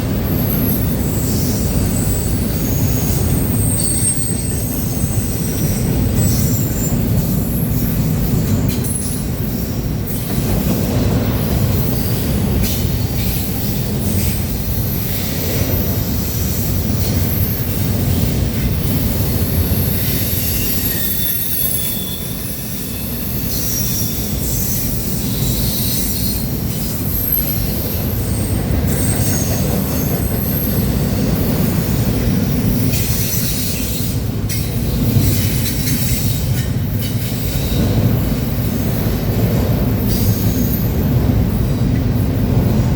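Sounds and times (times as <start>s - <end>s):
freight train cars rumbling: 0.0s - 42.9s
wheels squealing: 0.2s - 10.2s, 19.4s - 32.0s.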